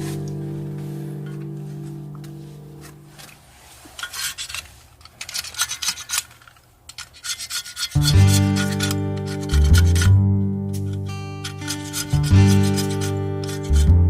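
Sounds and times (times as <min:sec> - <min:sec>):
quick rasping scrapes: 0:07.0 - 0:10.2, 0:10.8 - 0:14.0.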